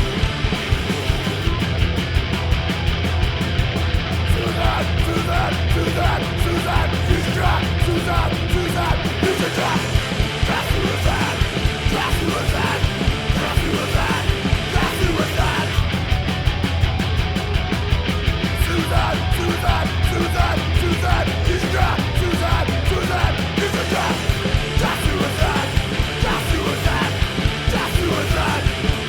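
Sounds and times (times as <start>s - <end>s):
punk rock band playing: 0.0s - 29.0s.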